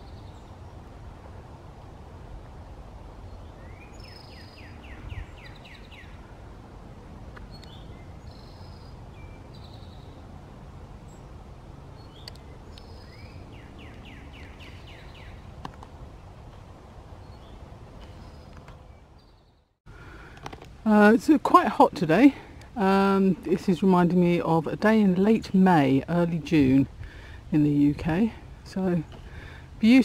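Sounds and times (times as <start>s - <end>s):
steady low rumble: 0.0s - 19.2s
songbird singing: 0.0s - 30.0s.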